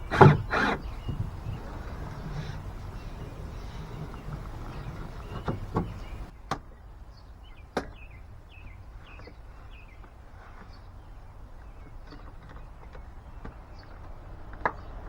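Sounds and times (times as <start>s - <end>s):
low background hum: 0.0s - 6.3s
sharp knocks: 0.0s - 6.3s.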